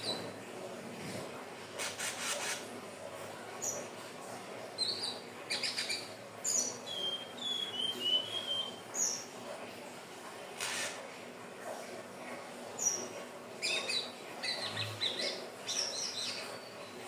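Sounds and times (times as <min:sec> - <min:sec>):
bird chirping and whistling: 0:06.9 - 0:08.8.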